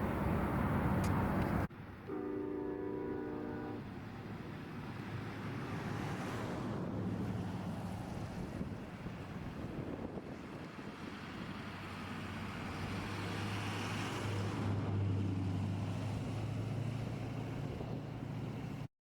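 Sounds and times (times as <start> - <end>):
vehicle engine humming: 0.0 - 18.9
wind noise: 6.3 - 12.0.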